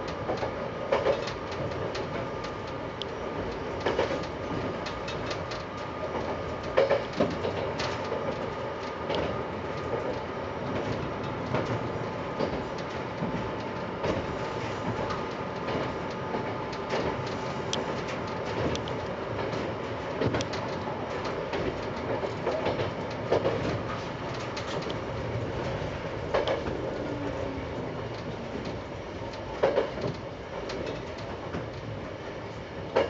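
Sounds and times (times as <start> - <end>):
diesel railcar running noise: 0.0 - 33.0
wheels clacking over rail joints: 3.4 - 14.3, 14.9 - 31.9.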